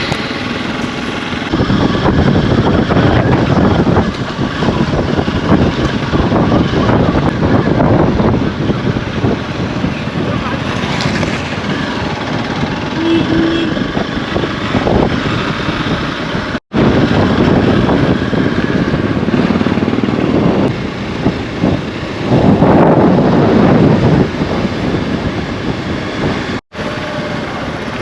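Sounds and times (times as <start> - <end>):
motorcycle engine and road noise: 0.0 - 28.0.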